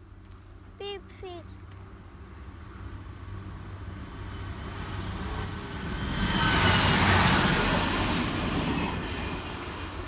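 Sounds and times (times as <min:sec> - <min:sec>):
diesel train passing: 0:02.2 - 0:10.0.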